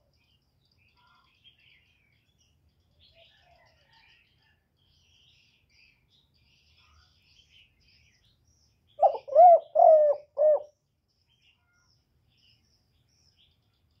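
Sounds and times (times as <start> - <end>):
faint high bird chirps: 0.0 - 14.0
dove cooing: 9.0 - 10.7.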